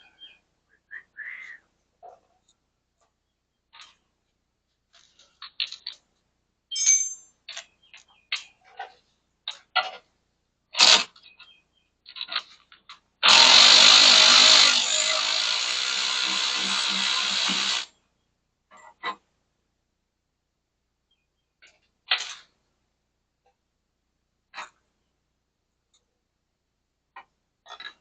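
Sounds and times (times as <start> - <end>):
metal hand tools clinking: 6.7 - 7.6
power tool running: 13.2 - 17.9.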